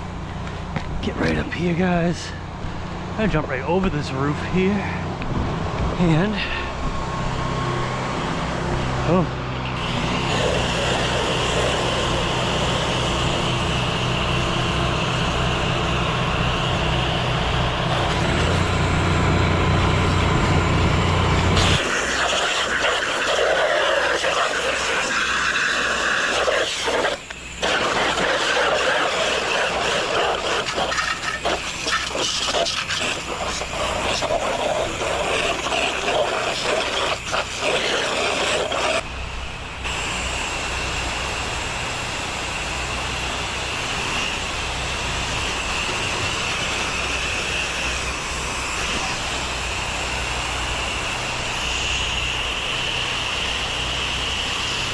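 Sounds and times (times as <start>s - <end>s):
engine humming: 0.0s - 22.3s
water spray hissing: 9.8s - 14.6s, 21.6s - 39.0s.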